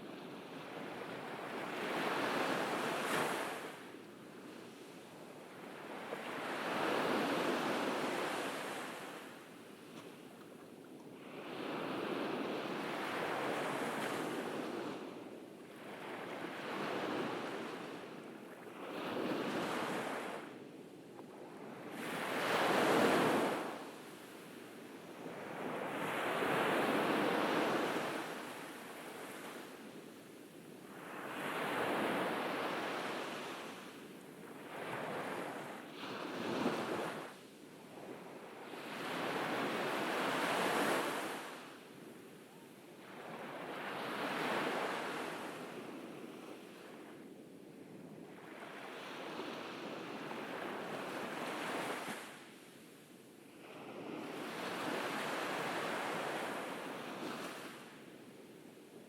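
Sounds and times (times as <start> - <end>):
ocean waves breaking on beach: 0.0 - 10.4, 11.1 - 20.6, 21.5 - 47.4, 48.0 - 58.4.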